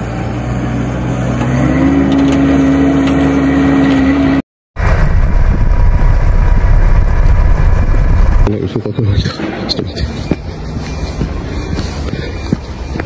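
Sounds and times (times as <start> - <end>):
engine revving: 0.0 - 8.6
rough low rumble: 4.8 - 13.0.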